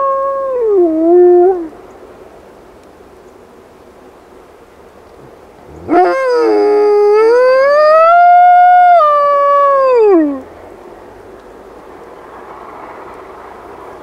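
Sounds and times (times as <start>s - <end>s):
wolf dog howling: 0.0s - 1.7s, 5.7s - 10.5s.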